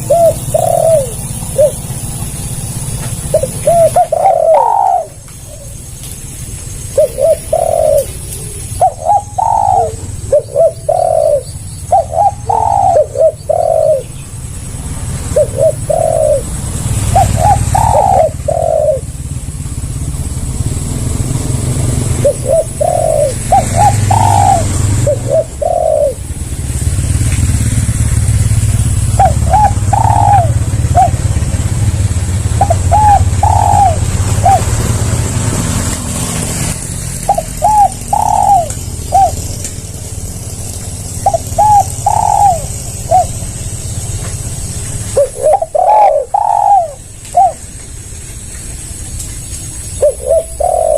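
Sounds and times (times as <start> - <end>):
dove cooing: 0.0 - 6.0, 6.7 - 14.2, 15.3 - 19.4, 22.0 - 26.6, 28.6 - 35.5, 37.2 - 39.7, 41.1 - 43.5, 45.1 - 47.7, 50.0 - 50.9.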